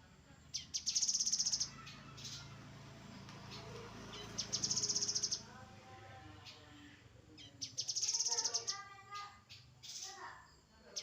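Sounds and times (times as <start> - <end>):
bird singing fast high trill: 0.6 - 2.5, 4.2 - 5.5.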